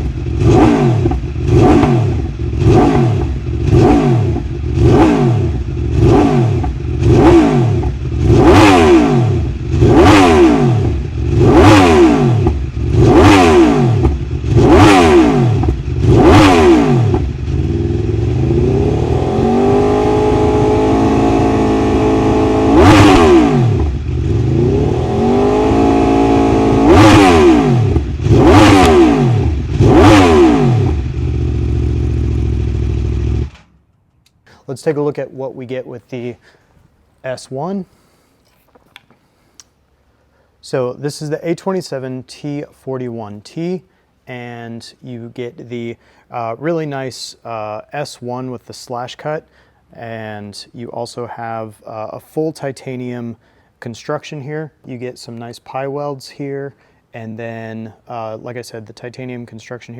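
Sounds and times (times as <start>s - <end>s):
motorcycle engine revving: 0.0s - 33.7s.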